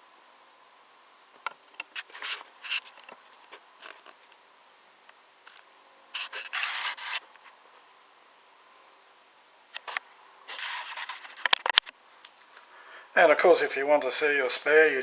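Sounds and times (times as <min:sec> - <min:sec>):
rubbing scrapes: 0:02.0 - 0:03.0, 0:06.2 - 0:07.2, 0:10.5 - 0:11.5.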